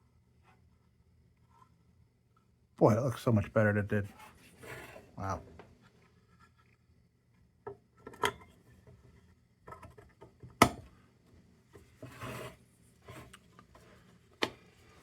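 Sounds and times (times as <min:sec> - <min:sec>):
short scraping rub: 0:12.0 - 0:13.3.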